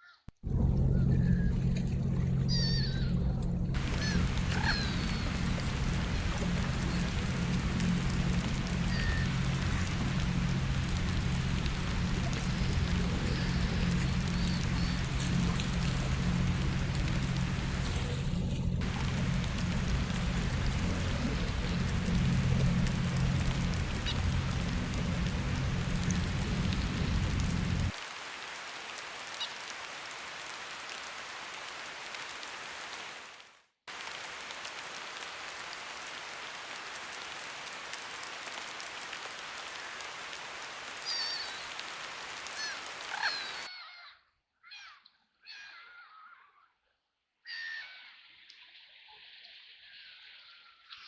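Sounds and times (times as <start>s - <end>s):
low rumble: 0.4s - 28.0s
rain pattering on river water: 0.4s - 43.7s.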